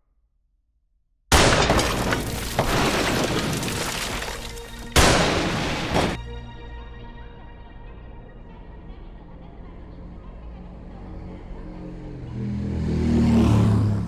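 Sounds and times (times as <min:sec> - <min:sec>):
handgun shots: 0:01.3 - 0:02.1, 0:05.0 - 0:06.2
low steady drone: 0:06.3 - 0:13.0.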